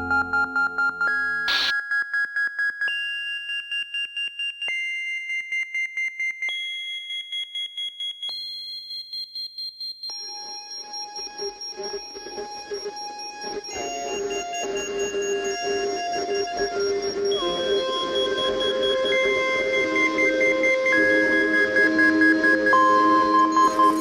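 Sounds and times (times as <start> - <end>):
electronic beeping tone: 1.5 - 1.7
short burst of noise: 1.5 - 1.7.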